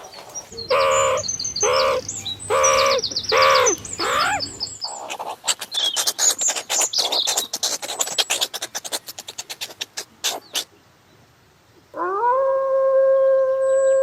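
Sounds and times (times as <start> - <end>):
dog howling: 12.0 - 14.0.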